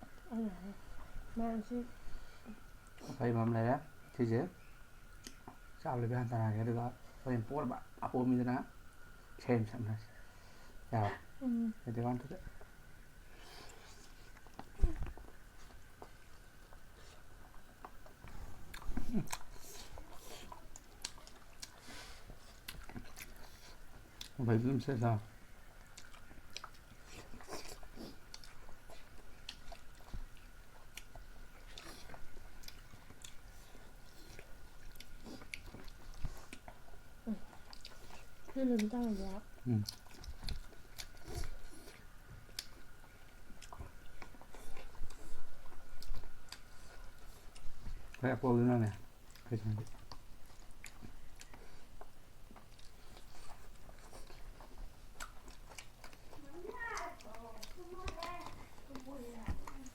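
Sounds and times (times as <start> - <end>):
person chewing food: 5.1 - 5.7, 12.5 - 24.4, 25.3 - 59.9.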